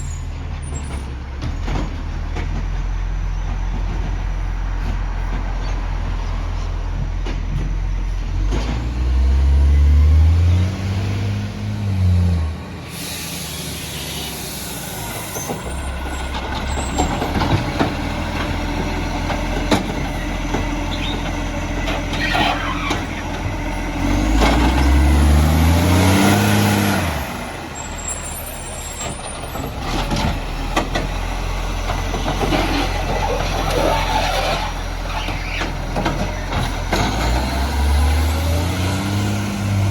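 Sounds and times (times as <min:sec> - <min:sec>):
garbage truck diesel engine revving: 0:00.0 - 0:39.9
air brake hiss: 0:12.8 - 0:15.8.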